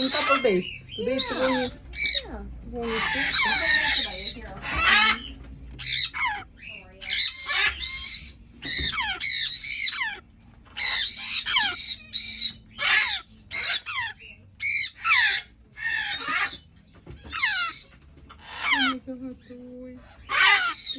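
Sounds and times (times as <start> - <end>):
parrot chick squawking: 0.0 - 20.9.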